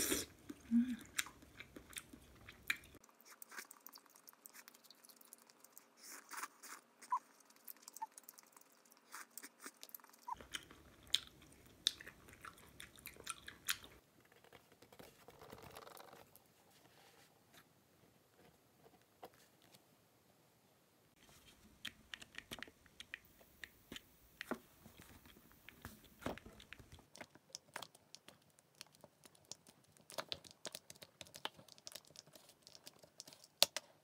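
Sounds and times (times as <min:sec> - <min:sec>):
person chewing noodles: 0:00.0 - 0:14.0.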